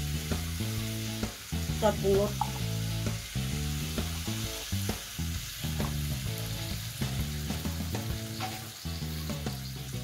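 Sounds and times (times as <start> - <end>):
background music: 0.0 - 10.0
food sizzling in a wok: 0.0 - 10.0.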